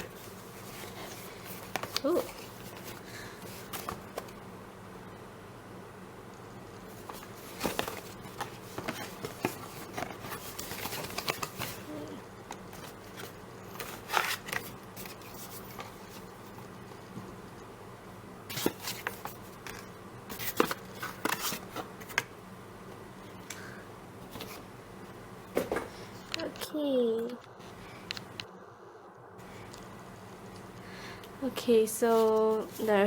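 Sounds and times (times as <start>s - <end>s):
packaging rustling and clicking: 0.0s - 4.4s, 6.9s - 17.0s, 18.5s - 22.3s
faint steady hum: 0.0s - 33.0s.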